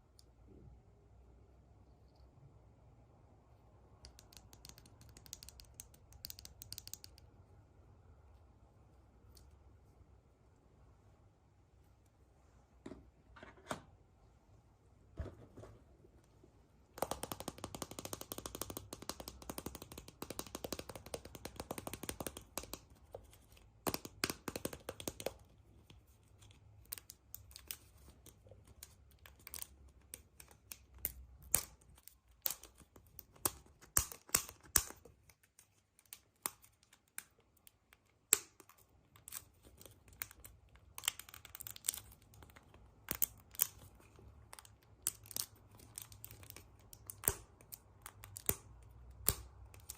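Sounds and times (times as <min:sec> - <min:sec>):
clicks and taps of handling: 0:04.0 - 0:07.3, 0:17.0 - 0:25.5.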